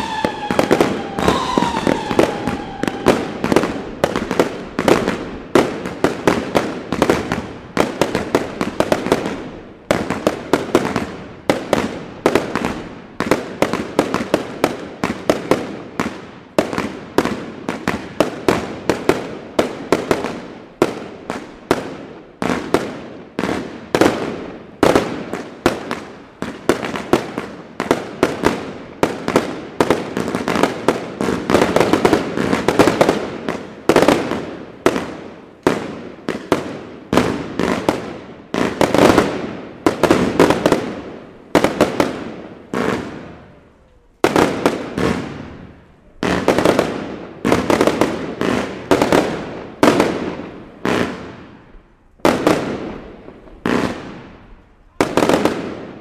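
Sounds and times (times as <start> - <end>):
aerial fireworks bursting: 0.0 - 43.6.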